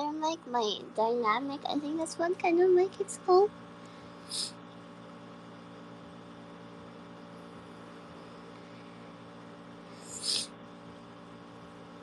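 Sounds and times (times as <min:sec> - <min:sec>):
air conditioner humming: 0:00.0 - 0:12.0
brief high hiss: 0:10.0 - 0:10.5.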